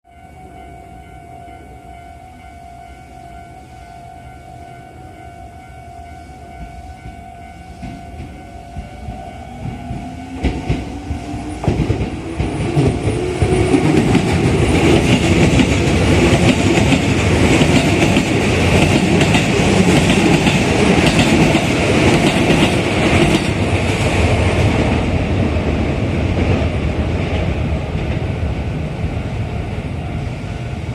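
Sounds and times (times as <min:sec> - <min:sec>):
level crossing warning bell: 0:00.1 - 0:24.0
electric train passing: 0:00.1 - 0:30.9.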